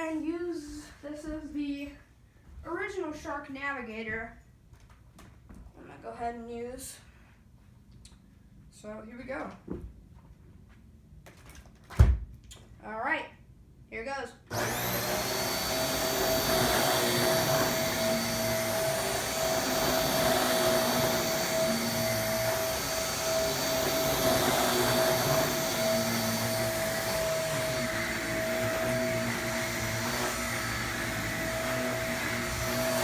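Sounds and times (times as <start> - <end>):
vacuum cleaner running: 14.5 - 33.0.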